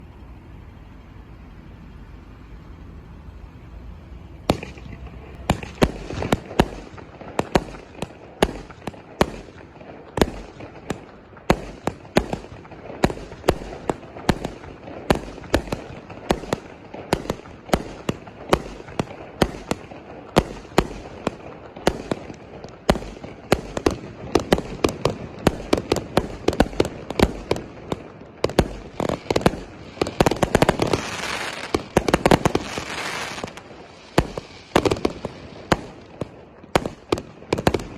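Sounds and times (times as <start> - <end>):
firework crackle: 4.3 - 37.9
firework cake bangs: 4.4 - 37.9.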